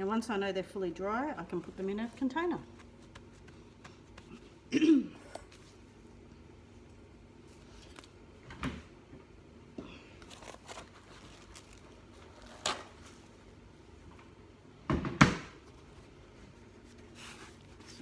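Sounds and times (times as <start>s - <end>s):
faint steady hum: 0.0s - 18.0s
knocks and clatters on kitchen bench: 14.9s - 15.6s.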